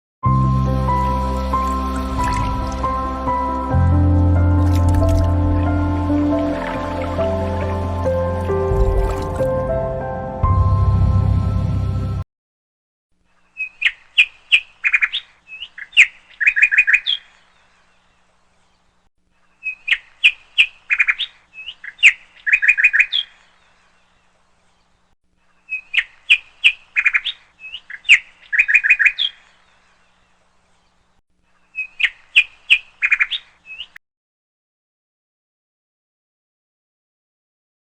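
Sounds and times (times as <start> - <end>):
music track: 0.3 - 12.2
bird chirping and trilling: 13.4 - 17.7, 19.6 - 23.6, 25.6 - 29.8, 31.7 - 34.0.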